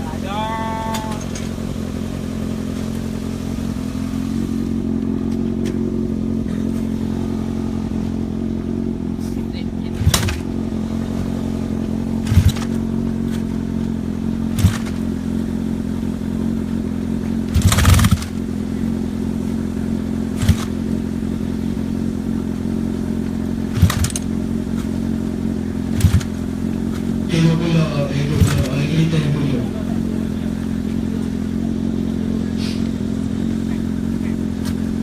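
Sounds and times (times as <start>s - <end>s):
motorcycle engine idling: 0.0s - 35.0s
sharp engine pops: 10.0s - 10.5s, 12.2s - 13.5s, 14.5s - 15.1s, 17.5s - 18.4s, 20.4s - 20.8s, 23.7s - 24.9s, 25.9s - 27.1s.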